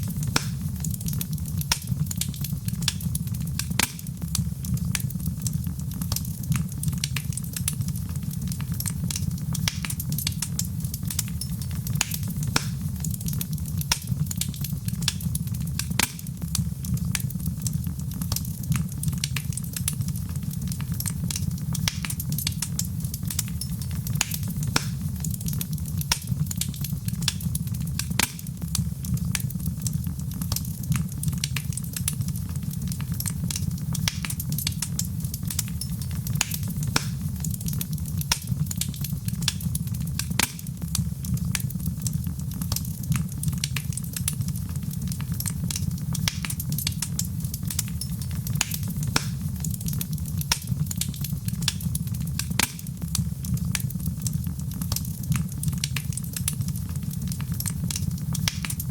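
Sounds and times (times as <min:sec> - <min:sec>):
fire crackling and popping: 0:00.0 - 0:58.9
low rumble of flames: 0:00.0 - 0:58.9.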